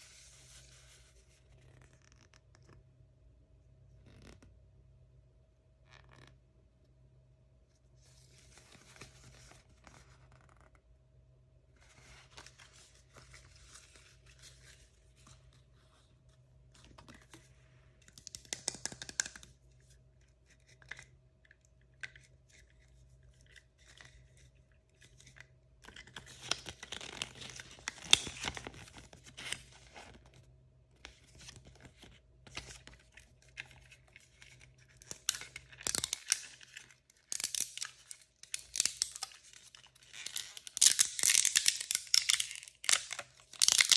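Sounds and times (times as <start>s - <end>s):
plastic packaging tearing and crinkling: 34.4s - 43.9s.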